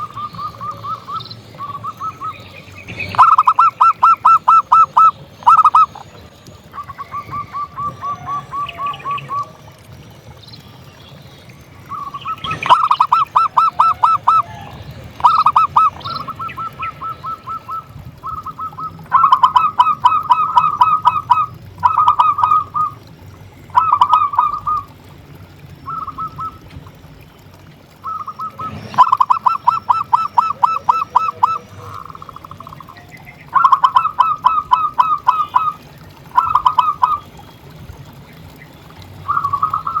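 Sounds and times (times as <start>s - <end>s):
dove cooing: 0.0s - 6.1s, 11.9s - 23.1s, 23.7s - 25.0s, 27.9s - 37.4s, 39.3s - 40.0s.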